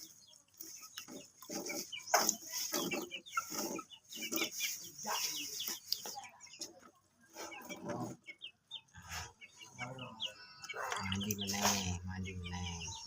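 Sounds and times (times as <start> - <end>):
bird high chirping notes: 8.7 - 13.0.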